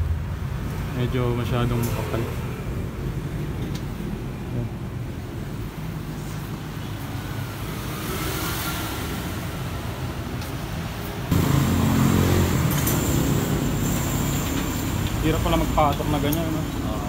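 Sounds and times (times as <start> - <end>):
road traffic rumble: 0.0 - 17.0
loud engine rumble: 11.3 - 16.8.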